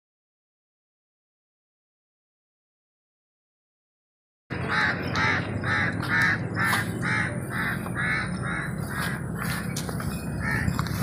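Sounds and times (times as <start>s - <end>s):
bird calling rapidly: 4.6s - 9.8s.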